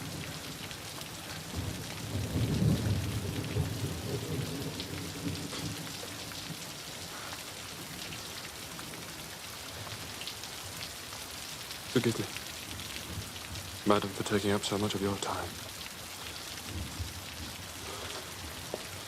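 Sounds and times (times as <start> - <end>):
heavy rain falling: 0.0 - 19.0
low rumble of thunder: 1.3 - 6.6, 16.6 - 17.8.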